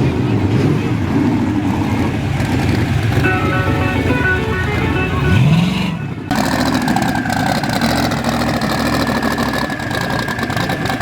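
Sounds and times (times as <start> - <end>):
car engine revving: 0.0 - 11.0
engine idling: 0.0 - 11.0.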